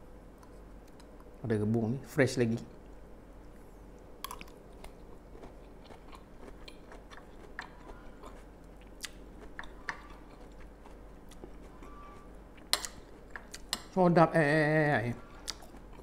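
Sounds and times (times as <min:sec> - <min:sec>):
person chewing crunchy food: 0:04.2 - 0:13.9, 0:15.2 - 0:16.0.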